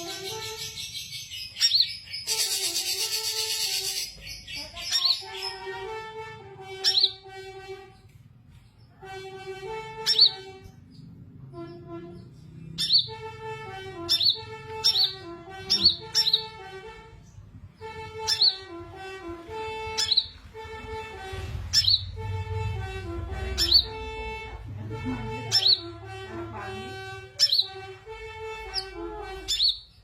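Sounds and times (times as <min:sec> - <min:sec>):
small bird chirping: 0:00.0 - 0:05.8, 0:06.8 - 0:07.2, 0:10.0 - 0:13.2, 0:14.0 - 0:16.6, 0:17.3 - 0:18.7, 0:19.9 - 0:20.4, 0:21.7 - 0:22.1, 0:27.4 - 0:27.8, 0:28.7 - 0:30.0.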